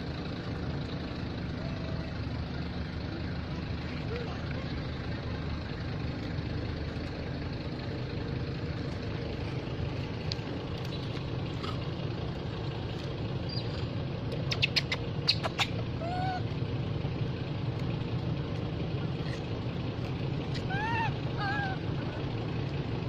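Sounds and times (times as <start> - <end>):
low background rumble: 0.0 - 23.0
baby monkey squeaking: 14.4 - 16.4, 20.5 - 21.8.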